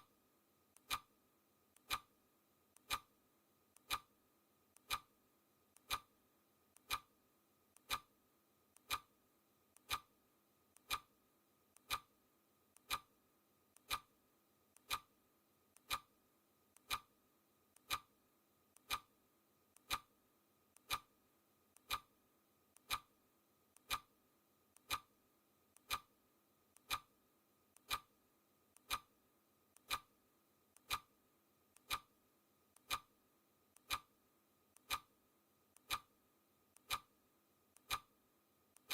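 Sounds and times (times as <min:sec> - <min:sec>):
clock ticking: 0:00.7 - 0:01.1, 0:01.7 - 0:02.1, 0:02.7 - 0:03.1, 0:03.7 - 0:04.1, 0:04.7 - 0:05.1, 0:05.7 - 0:06.1, 0:06.7 - 0:07.1, 0:07.7 - 0:08.1, 0:08.7 - 0:09.1, 0:09.7 - 0:10.1, 0:10.7 - 0:11.1, 0:11.7 - 0:12.1, 0:12.7 - 0:13.1, 0:13.7 - 0:14.1, 0:14.7 - 0:15.1, 0:15.7 - 0:18.1, 0:18.7 - 0:19.1, 0:19.7 - 0:20.1, 0:20.7 - 0:26.1, 0:26.7 - 0:27.1, 0:27.7 - 0:29.2, 0:29.8 - 0:36.2, 0:36.8 - 0:37.2, 0:37.8 - 0:38.2.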